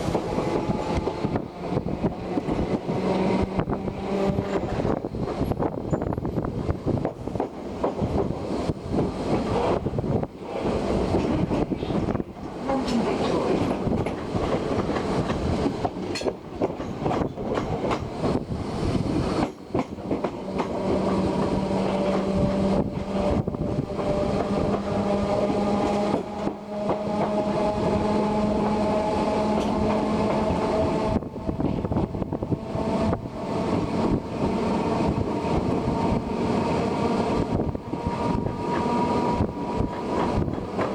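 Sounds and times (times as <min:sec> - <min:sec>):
steady train whine: 0:00.0 - 0:40.9
train rumbling on track: 0:00.0 - 0:40.9
wheels clicking over rail joints: 0:10.5 - 0:18.4, 0:19.4 - 0:22.4.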